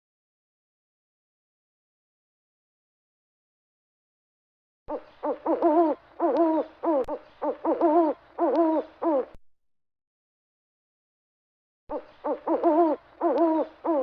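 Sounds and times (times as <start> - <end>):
animal calling: 4.9 - 9.4, 11.9 - 14.0.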